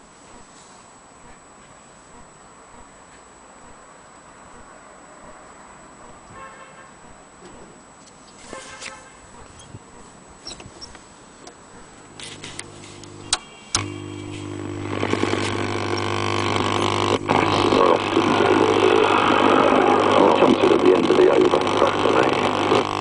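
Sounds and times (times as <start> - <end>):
low mains hum: 9.1 - 23.0
radio hiss: 12.0 - 23.0
radio switch click: 12.4 - 18.2.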